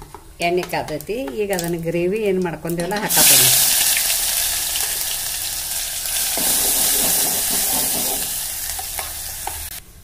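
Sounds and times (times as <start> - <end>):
hot oil sizzling in a pot: 3.0 - 9.8.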